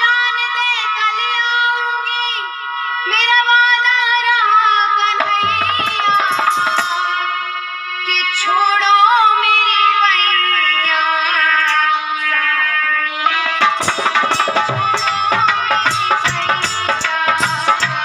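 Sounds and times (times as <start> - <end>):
woman singing: 0.0 - 14.0, 14.6 - 18.0
instrumental accompaniment: 5.1 - 7.4, 11.6 - 18.0
hand drum strokes: 5.2 - 7.0, 13.2 - 18.0.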